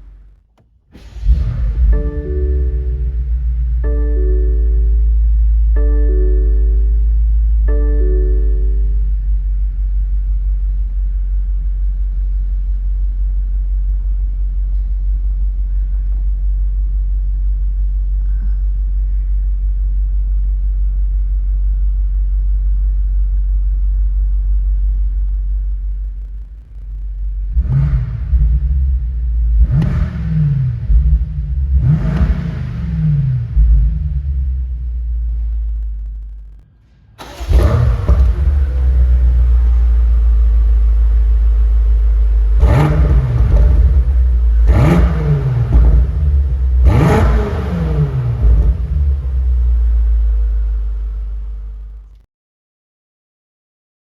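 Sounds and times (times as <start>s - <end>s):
car engine idling rumble: 0.0s - 52.3s
ringing chord: 1.8s - 9.5s.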